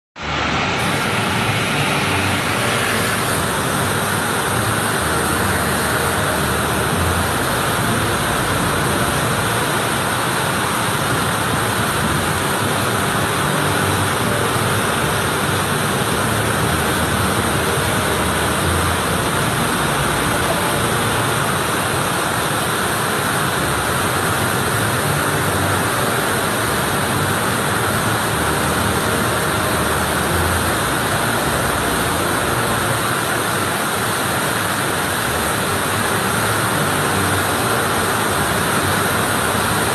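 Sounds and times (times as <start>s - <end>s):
waterfall rushing: 0.2s - 39.9s.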